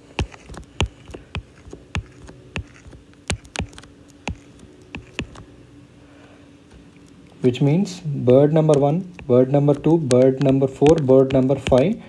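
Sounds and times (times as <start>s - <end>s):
low electrical hum: 0.0s - 12.0s
keyboard keys clicking: 0.2s - 5.4s, 8.5s - 12.0s.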